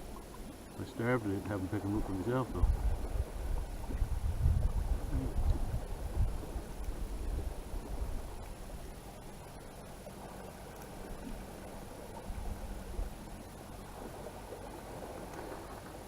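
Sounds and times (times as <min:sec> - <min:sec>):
wind buffeting microphone: 0:01.8 - 0:09.0.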